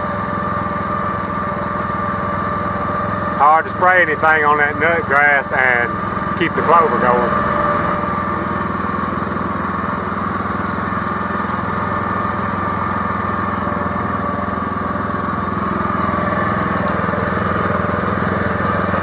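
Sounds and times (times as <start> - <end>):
farm vehicle engine running: 0.0 - 19.0
high whine: 2.8 - 10.3.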